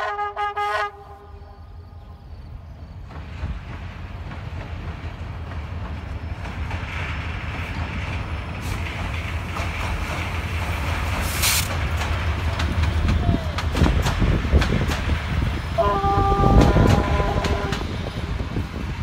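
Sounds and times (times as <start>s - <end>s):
train rumble: 0.0s - 19.0s
high rushing wheel hiss: 3.2s - 13.0s.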